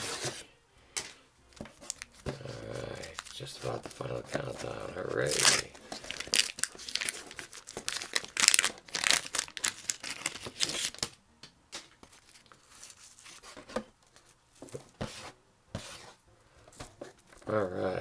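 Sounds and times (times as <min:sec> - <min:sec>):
cards rustling and clicking: 0:01.0 - 0:17.6
wax paper pack tearing: 0:01.6 - 0:11.2, 0:12.0 - 0:13.5.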